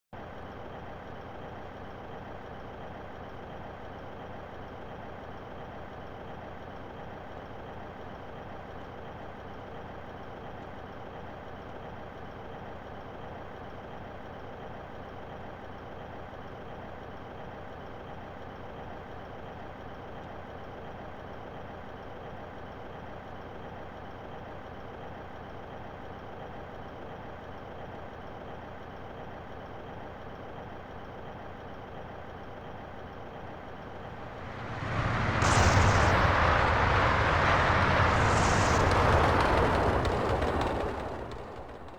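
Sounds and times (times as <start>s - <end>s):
vehicle engine humming: 33.5s - 41.9s.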